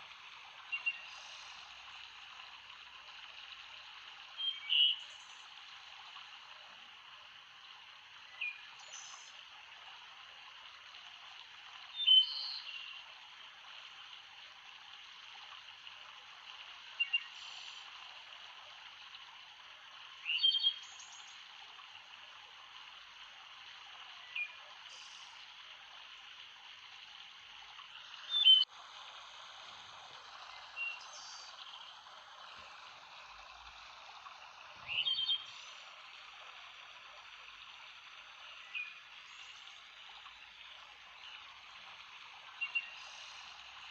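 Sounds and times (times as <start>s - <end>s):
stream babbling: 0.0s - 43.9s
bird chirping: 34.9s - 35.6s.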